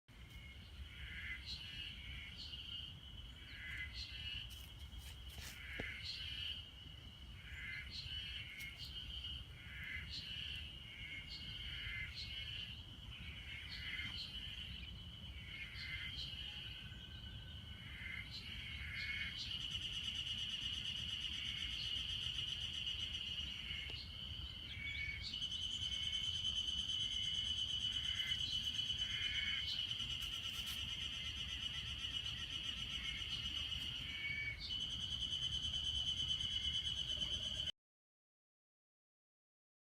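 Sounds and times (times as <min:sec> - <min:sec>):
cicadas calling: 0:17.8 - 0:37.7.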